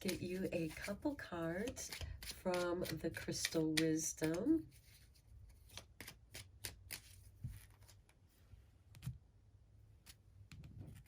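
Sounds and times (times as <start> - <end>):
cards being shuffled: 0.0 - 8.1.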